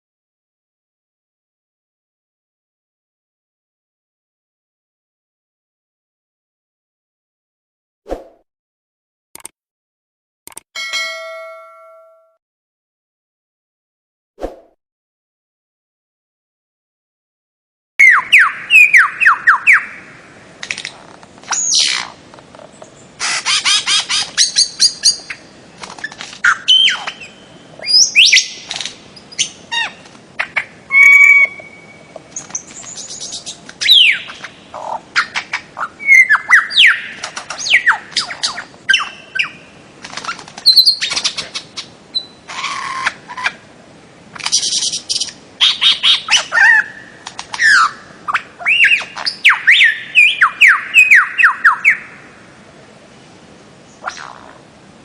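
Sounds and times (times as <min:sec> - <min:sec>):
bird calling in sharp notes: 0:30.9 - 0:32.1.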